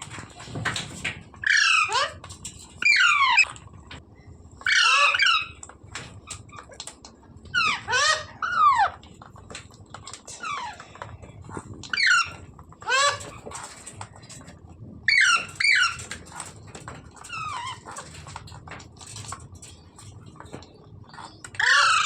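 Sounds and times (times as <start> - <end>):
parrot calling: 1.4 - 2.2, 2.8 - 3.5, 4.6 - 5.6, 7.5 - 9.0, 11.9 - 13.4, 15.1 - 16.0, 21.3 - 22.0.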